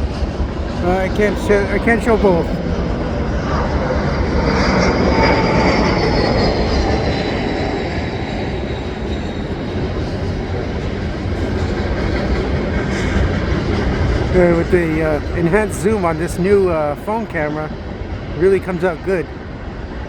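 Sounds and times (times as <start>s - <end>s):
freight train cars rumbling: 0.0s - 2.8s, 8.4s - 20.0s
jet engine whine overhead: 0.0s - 20.0s.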